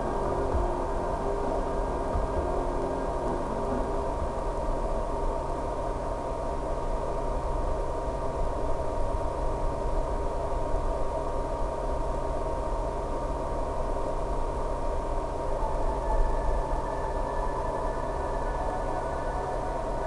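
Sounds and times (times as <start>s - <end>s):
drone motor whine: 0.0s - 5.4s.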